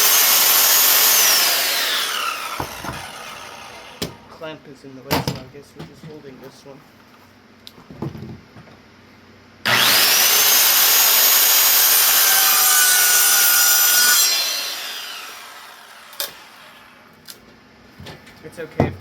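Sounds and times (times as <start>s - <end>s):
electric saw cutting wood: 0.0s - 4.3s, 9.7s - 17.1s.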